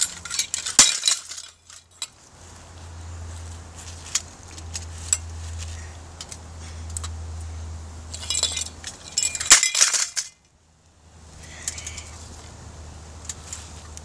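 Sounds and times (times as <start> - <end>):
fan parts clinking and rattling: 0.0 - 2.3, 3.8 - 10.6, 11.4 - 12.5, 13.2 - 14.0.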